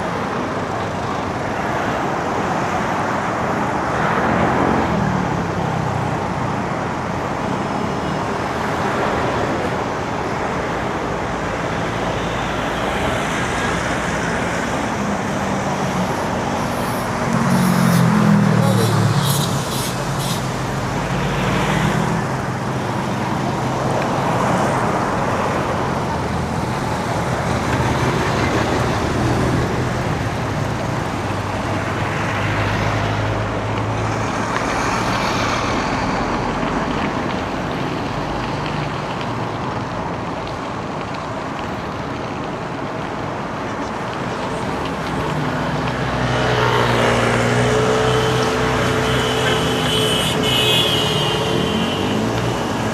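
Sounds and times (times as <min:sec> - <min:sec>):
cars and trucks passing: 0:00.0 - 0:52.9
tyres hissing: 0:11.5 - 0:23.3.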